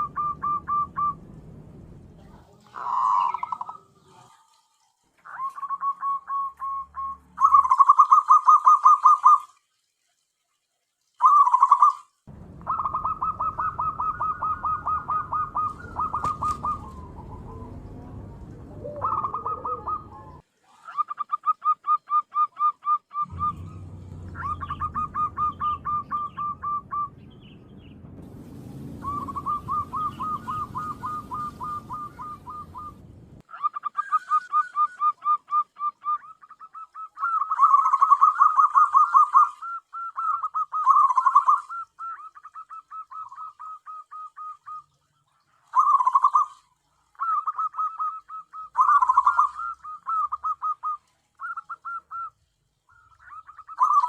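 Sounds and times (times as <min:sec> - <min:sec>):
dove cooing: 0:00.0 - 0:01.4, 0:02.2 - 0:04.6, 0:05.2 - 0:09.4, 0:12.6 - 0:27.2, 0:29.0 - 0:44.8, 0:45.7 - 0:52.3
low rumble: 0:00.0 - 0:02.9, 0:12.3 - 0:20.4, 0:23.3 - 0:33.4.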